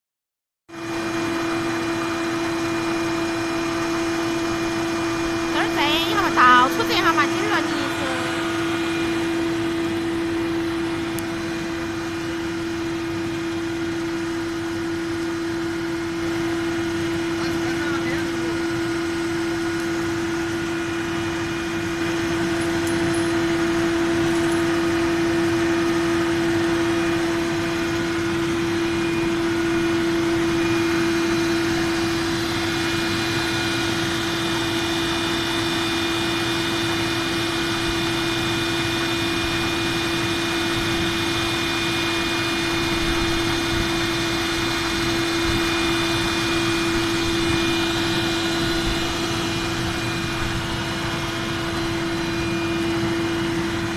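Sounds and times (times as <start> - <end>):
carding machine humming: 3.0 - 13.4, 14.4 - 36.7
high whining tones: 4.9 - 11.6.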